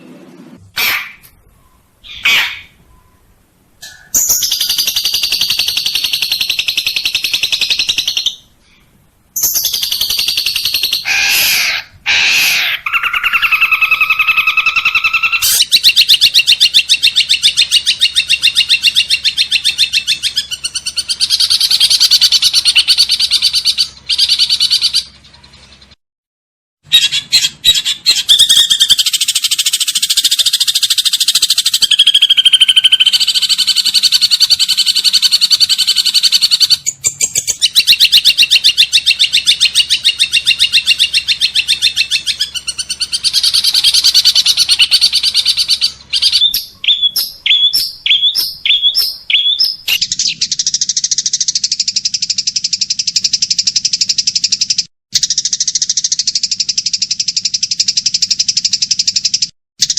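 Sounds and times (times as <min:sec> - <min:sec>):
bird chirps: 0:00.8 - 0:26.0, 0:26.9 - 0:59.9
songbird trills and warbles: 0:01.4 - 0:26.0, 0:27.0 - 0:59.9
fast buzzing bird trill: 0:26.9 - 0:59.9.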